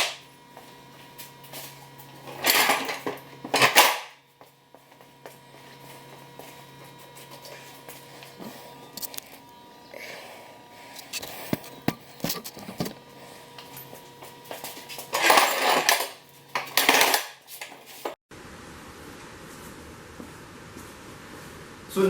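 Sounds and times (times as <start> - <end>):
metal tools clinking: 2.3 - 4.1, 14.6 - 18.2.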